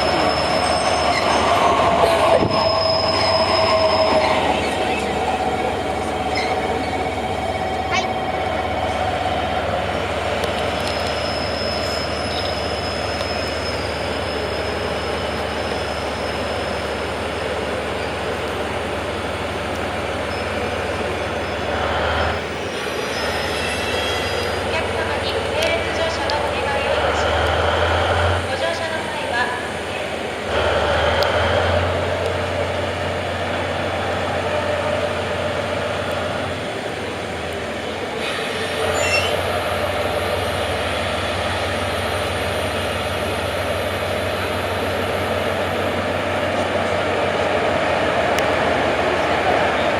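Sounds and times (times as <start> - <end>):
diesel locomotive running: 0.0 - 49.9
thin high squeal: 38.3 - 39.4.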